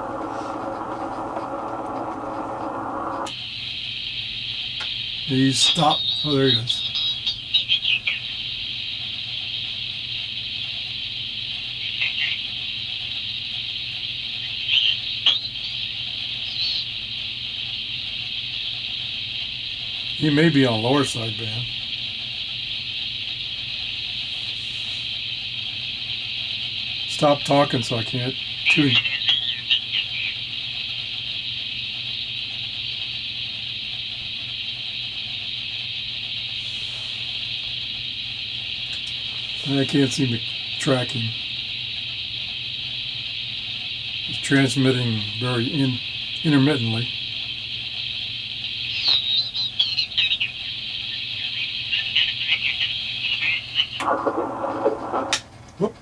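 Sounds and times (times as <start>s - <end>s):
low hum: 0.0s - 3.3s
radio static hiss: 0.0s - 3.3s, 5.2s - 6.9s, 11.7s - 12.5s, 20.0s - 22.0s, 26.7s - 30.7s, 36.4s - 42.3s, 43.3s - 48.1s, 48.7s - 56.0s
squeaky radio chirps: 0.0s - 3.3s, 5.2s - 8.7s, 11.8s - 12.5s, 14.4s - 16.9s, 20.1s - 21.8s, 27.0s - 30.6s, 38.8s - 41.4s, 44.2s - 47.3s, 48.7s - 55.5s.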